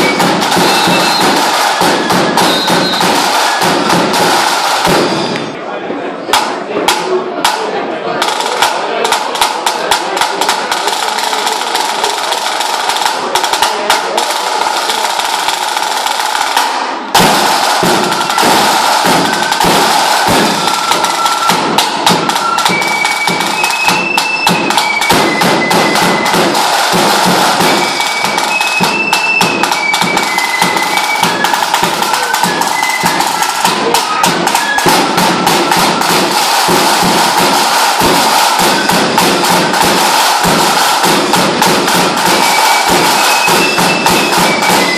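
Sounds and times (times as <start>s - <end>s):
drum rattle of cane strokes: 0.0s - 5.4s, 6.3s - 44.9s
high piping tune: 0.0s - 5.5s, 17.2s - 41.0s, 41.9s - 44.9s.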